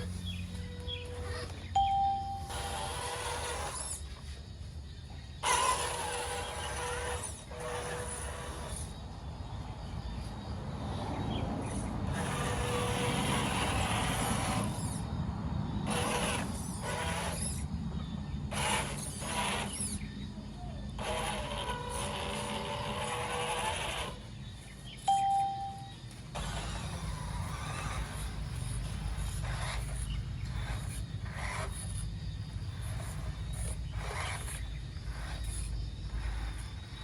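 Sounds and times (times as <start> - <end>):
small electric motors whining: 0.0 - 37.0
high tone: 1.8 - 2.7, 25.1 - 26.0.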